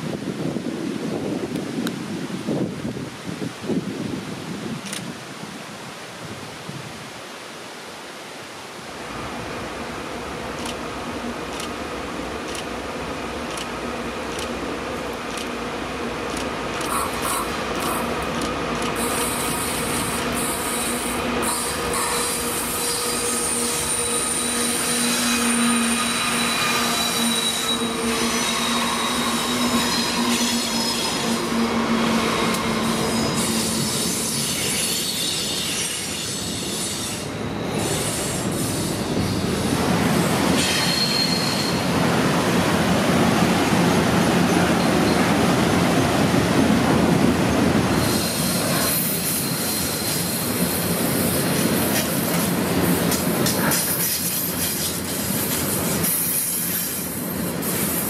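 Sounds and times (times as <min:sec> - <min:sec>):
train running noise: 0:08.9 - 0:58.0
train wheels squealing: 0:19.0 - 0:42.0, 0:48.0 - 0:52.5, 0:53.6 - 0:58.0.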